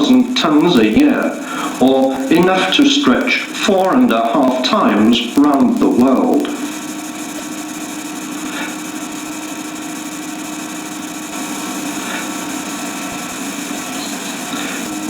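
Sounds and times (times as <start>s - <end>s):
industrial machinery hum: 0.0s - 15.0s.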